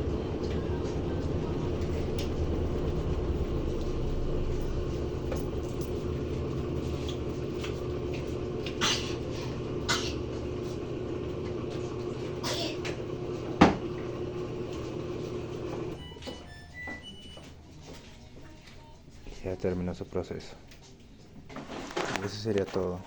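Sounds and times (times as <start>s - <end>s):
washing machine motor hum: 0.0s - 18.3s.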